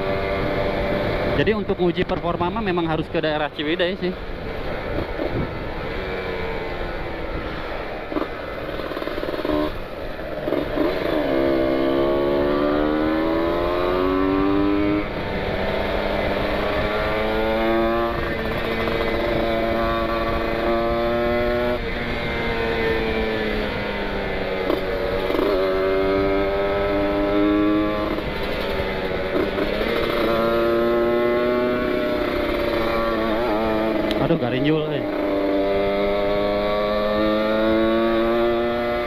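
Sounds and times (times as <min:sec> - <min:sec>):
motorcycle engine accelerating: 0:00.0 - 0:39.0
wind on microphone: 0:04.8 - 0:05.9.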